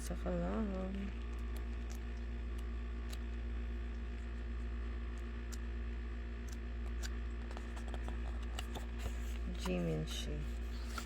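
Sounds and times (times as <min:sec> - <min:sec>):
steady low hum: 0:00.0 - 0:11.0
paper being handled: 0:08.7 - 0:11.0.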